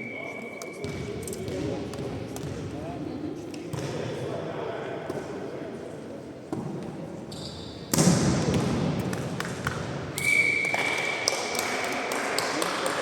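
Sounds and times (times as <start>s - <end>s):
volleyball hit: 7.9s - 9.9s.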